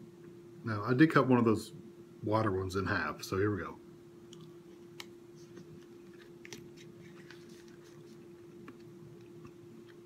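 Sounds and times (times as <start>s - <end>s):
steady low hum: 0.0s - 10.0s
person chewing: 5.8s - 10.0s.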